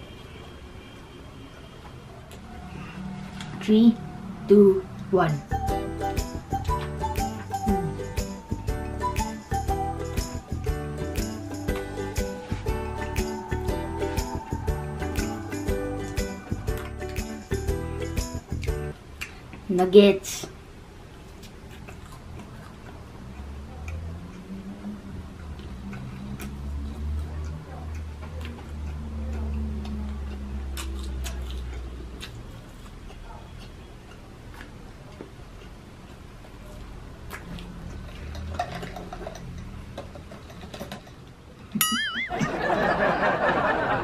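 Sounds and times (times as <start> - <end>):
wavering whistle-like sound effect: 5.5 - 16.8
person chewing: 15.6 - 17.6, 21.3 - 24.8, 25.4 - 39.4.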